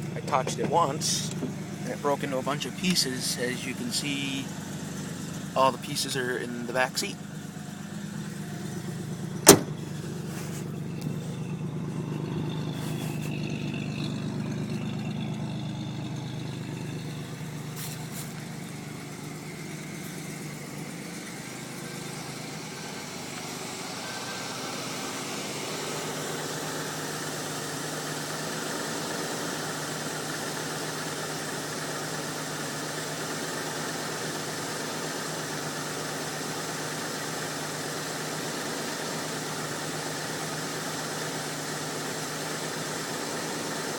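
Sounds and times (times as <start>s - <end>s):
car engine idling: 0.0s - 43.9s
sharp knock: 9.4s - 9.8s.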